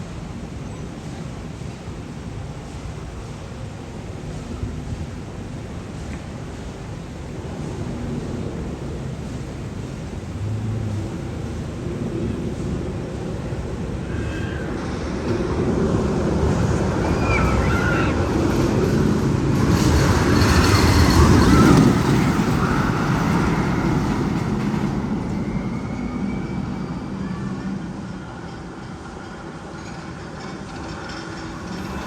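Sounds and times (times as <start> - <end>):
roller coaster rumbling on track: 0.0 - 32.0.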